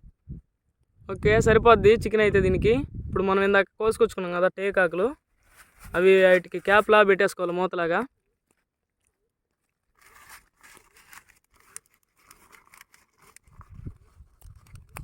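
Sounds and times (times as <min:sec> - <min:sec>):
leaves rustling and crackling: 0:05.0 - 0:07.6, 0:08.4 - 0:15.0.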